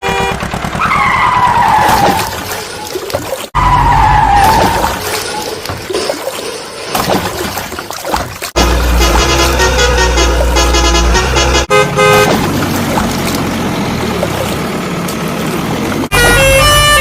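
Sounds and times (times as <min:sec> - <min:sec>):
heavy machinery rumbling: 0:08.5 - 0:17.0.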